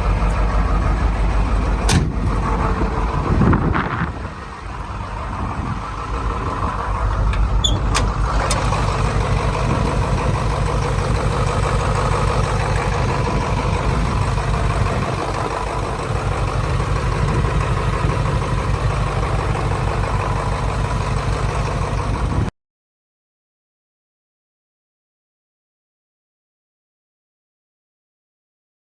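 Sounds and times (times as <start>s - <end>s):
diesel truck engine running: 0.0s - 22.5s.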